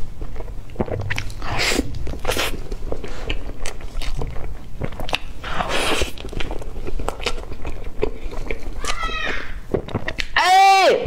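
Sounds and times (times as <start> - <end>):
biting and chewing: 0.0 - 10.4
wet mouth clicks and smacks: 0.2 - 9.0.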